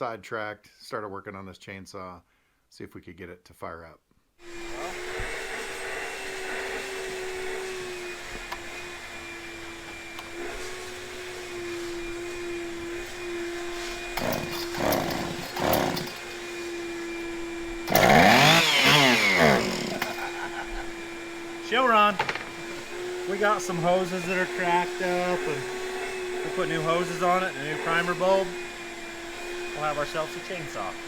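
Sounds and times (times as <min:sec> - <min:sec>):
chainsaw idling and revving: 0:13.2 - 0:28.6, 0:29.2 - 0:31.0.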